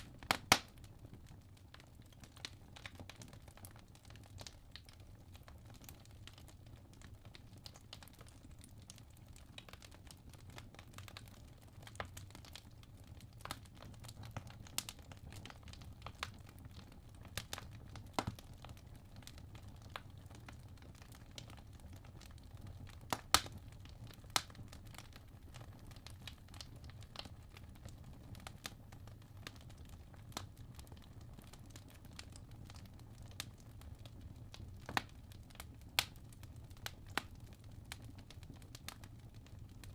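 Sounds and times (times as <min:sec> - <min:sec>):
fire crackling and popping: 0:00.0 - 0:39.9
low rumble of fire: 0:00.0 - 0:39.9.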